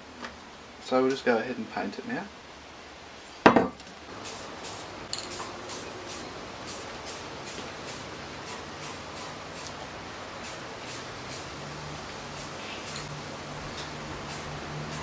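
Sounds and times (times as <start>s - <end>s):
aerosol spray paint hissing: 4.2s - 9.8s, 10.4s - 15.0s.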